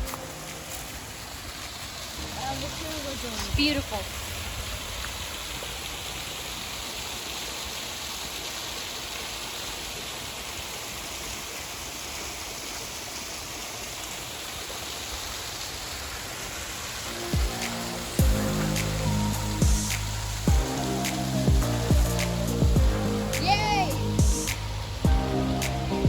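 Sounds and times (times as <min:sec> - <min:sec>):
waterfall splashing: 0:00.0 - 0:26.0
music: 0:17.1 - 0:26.0.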